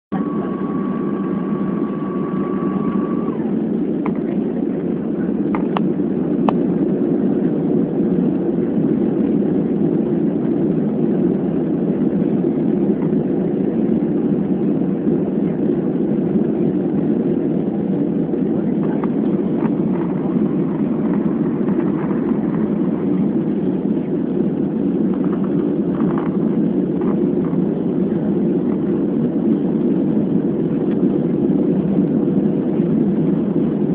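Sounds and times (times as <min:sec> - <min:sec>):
airliner engines droning: 0:00.0 - 0:33.9
steady high tone: 0:00.1 - 0:03.6
rushing air: 0:18.8 - 0:30.8.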